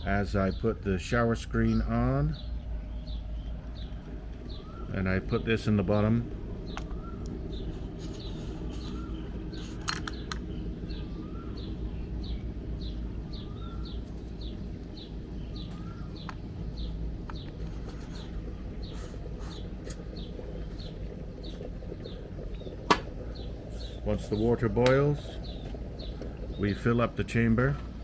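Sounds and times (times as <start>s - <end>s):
small birds chirping: 0.0s - 28.0s
steady low rumble: 0.0s - 28.0s.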